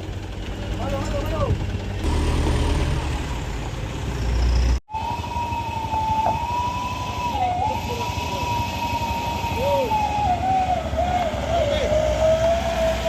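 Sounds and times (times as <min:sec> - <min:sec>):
heavy vehicle engine rumbling: 0:00.0 - 0:13.0
high-pitched horn-like tone: 0:05.6 - 0:10.1.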